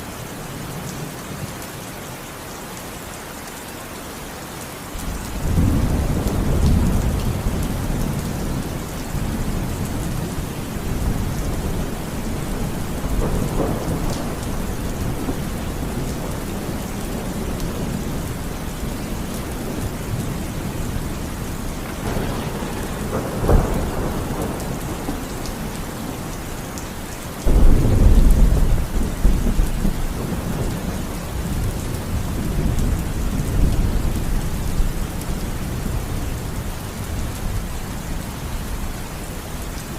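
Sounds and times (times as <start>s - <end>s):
steady rain: 0.0s - 39.9s
sharp crack of thunder: 5.0s - 26.8s, 27.4s - 34.9s
rolling thunder: 5.0s - 37.9s.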